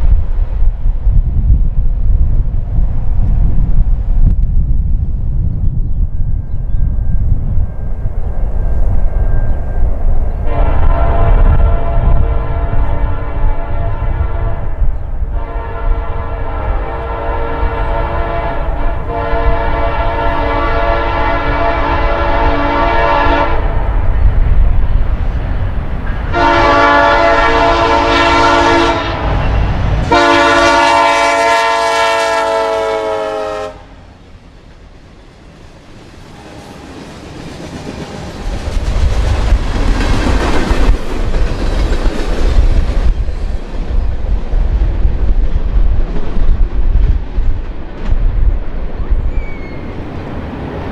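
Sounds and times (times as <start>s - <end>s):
train rumble and wheel clatter: 0.0s - 50.9s
locomotive air horn blasts: 10.4s - 23.8s, 26.3s - 34.0s.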